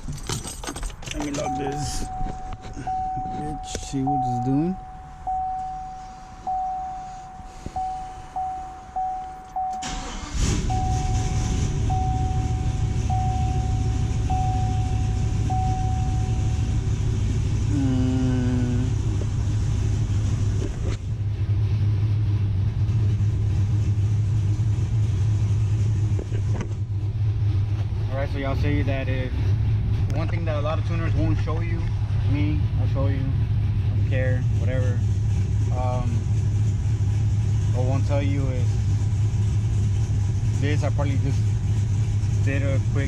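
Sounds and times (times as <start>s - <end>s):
engine cranking and idling: 0.0s - 43.0s
truck warning chime beeping: 1.2s - 17.0s.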